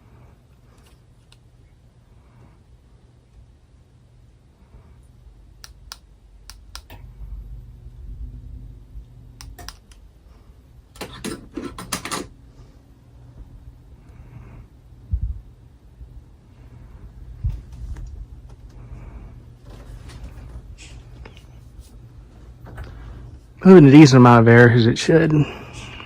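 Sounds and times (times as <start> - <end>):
ceiling fan humming: 0.0 - 26.0
sharp clicks: 5.6 - 7.0, 9.4 - 10.0.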